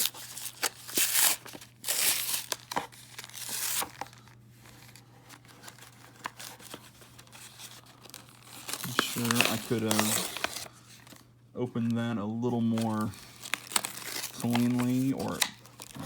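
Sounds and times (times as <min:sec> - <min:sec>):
packaging ripping and crinkling: 0:00.0 - 0:11.2, 0:12.6 - 0:16.0.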